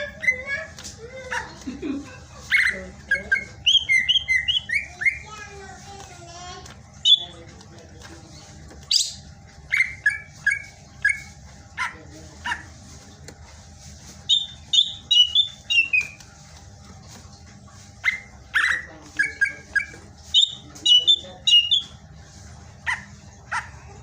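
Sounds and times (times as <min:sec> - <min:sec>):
bird whistling song: 0:02.6 - 0:05.3, 0:07.0 - 0:07.3, 0:14.3 - 0:16.2, 0:18.0 - 0:22.0.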